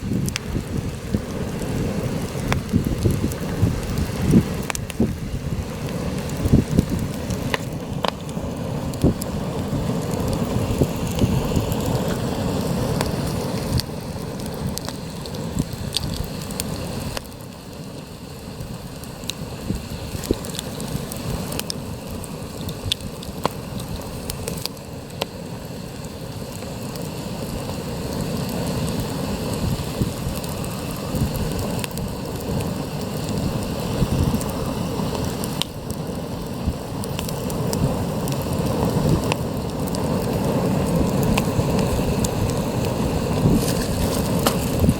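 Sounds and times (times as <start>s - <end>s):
wind buffeting microphone: 0.0s - 17.2s, 28.9s - 35.6s, 36.5s - 44.9s
campfire crackling and popping: 0.0s - 44.9s.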